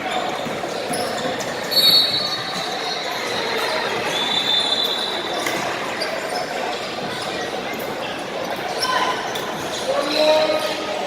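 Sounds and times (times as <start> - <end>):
gym crowd hubbub: 0.0 - 11.0
high-pitched shoe squeals: 0.9 - 5.3.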